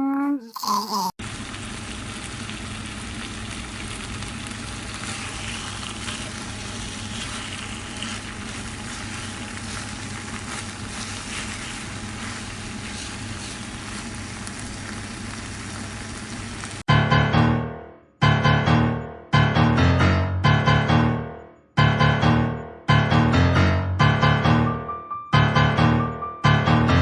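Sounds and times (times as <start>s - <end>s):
food sizzling in hot oil: 0.6s - 16.9s.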